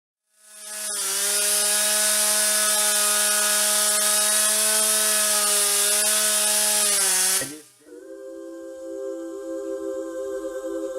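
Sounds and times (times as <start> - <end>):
small gas engine running: 0.3 - 7.8.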